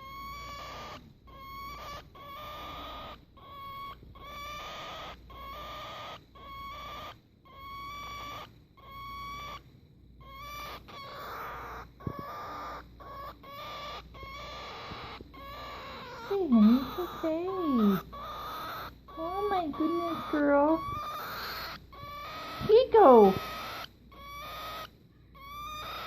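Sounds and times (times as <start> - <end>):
cockatiel rasping calls: 0.0 - 26.0.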